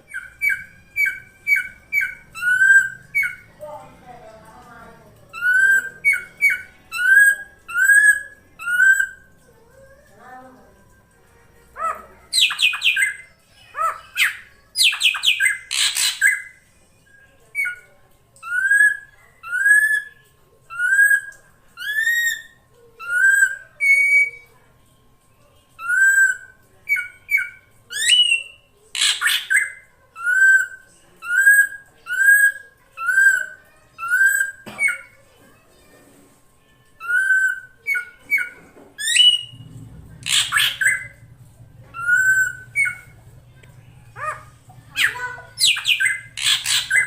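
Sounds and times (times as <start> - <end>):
bird harsh rasping chatter: 11.8 - 16.6, 25.8 - 35.2, 37.0 - 41.3, 41.9 - 43.3, 44.1 - 47.0.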